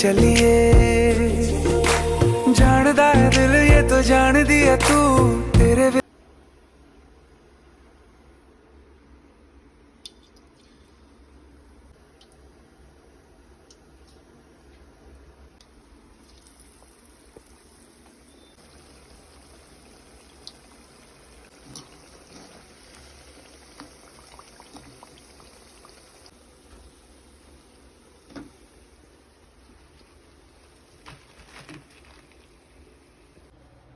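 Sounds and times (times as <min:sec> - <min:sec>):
oil pops and crackles: 0:15.6 - 0:18.2, 0:28.2 - 0:28.8, 0:29.7 - 0:32.9
food deep-frying in oil: 0:15.7 - 0:33.5.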